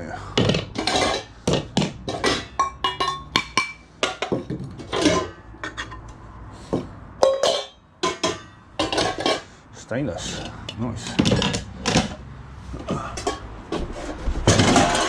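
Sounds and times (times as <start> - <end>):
metal pots and pans clanking: 0.2 - 6.1, 6.8 - 9.6, 10.3 - 12.2, 12.9 - 15.0.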